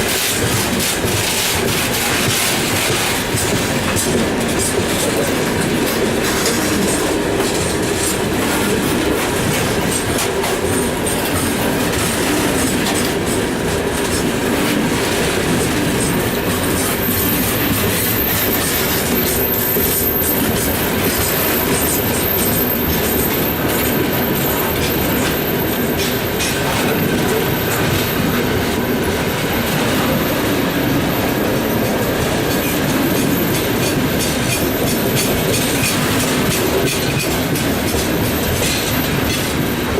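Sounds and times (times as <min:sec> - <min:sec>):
train wheels clacking on rail joints: 0:00.0 - 0:39.9
high-pitched wheel squeal: 0:16.0 - 0:26.5.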